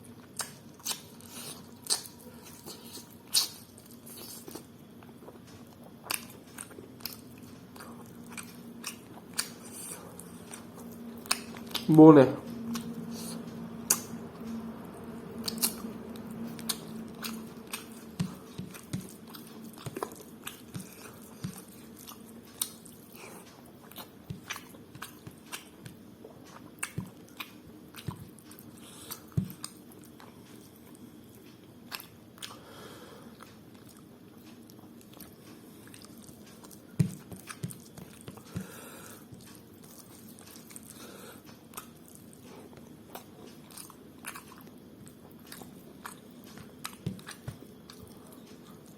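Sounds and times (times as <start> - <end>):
wet chewing and mouth clicks: 0.2 - 11.9, 12.6 - 32.6, 33.4 - 48.9.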